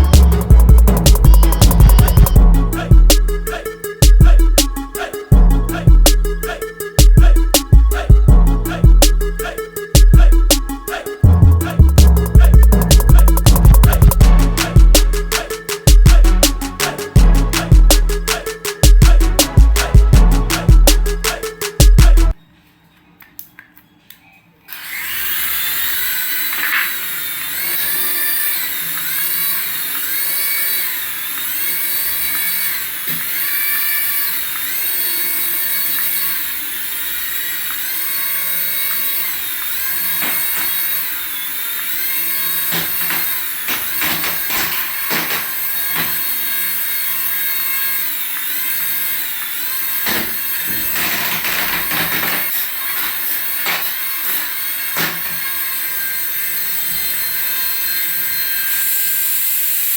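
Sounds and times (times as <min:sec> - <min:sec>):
toy motor whining: 0:00.0 - 0:22.4, 0:24.7 - 0:59.9.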